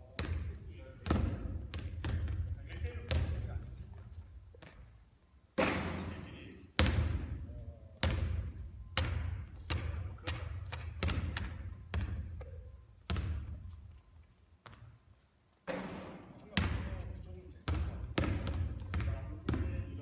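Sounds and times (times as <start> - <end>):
basketball bouncing on hard floor: 0.2 - 4.9, 6.8 - 7.3, 8.0 - 13.7, 15.7 - 20.0.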